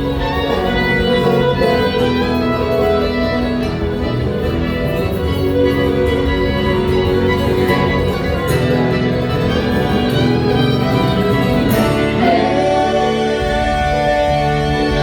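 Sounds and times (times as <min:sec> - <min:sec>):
live band playing: 0:00.0 - 0:15.0
person singing: 0:11.8 - 0:15.0.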